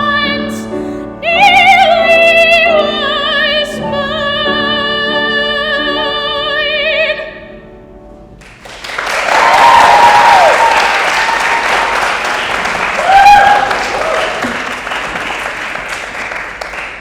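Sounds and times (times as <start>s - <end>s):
person singing with vibrato: 0.0s - 7.7s
piano accompaniment: 0.0s - 9.0s
audience applause: 8.4s - 17.0s
audience whooping: 8.7s - 17.0s.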